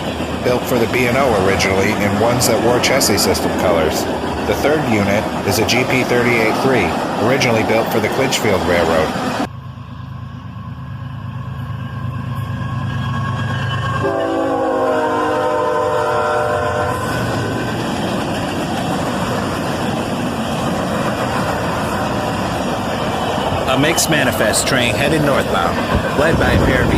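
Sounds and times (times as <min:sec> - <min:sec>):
train wheels rolling: 0:00.0 - 0:09.5, 0:10.2 - 0:26.9
diesel locomotive engine rumble: 0:00.0 - 0:26.9
train horn chord: 0:13.9 - 0:17.1.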